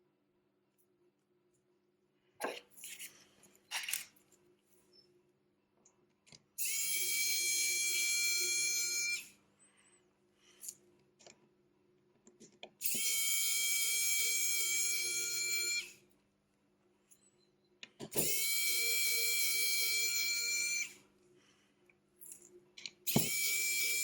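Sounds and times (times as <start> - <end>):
power tool motor whirring: 18.2 - 20.9, 23.1 - 24.0.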